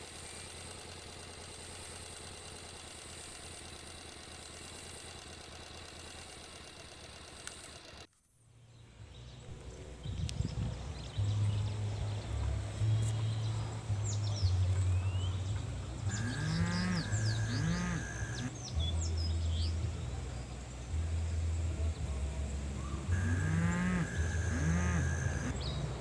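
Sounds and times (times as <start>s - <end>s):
steady low hum: 8.6s - 26.0s
birds chirping: 8.7s - 26.0s
cattle mooing: 14.4s - 18.5s, 22.8s - 26.0s.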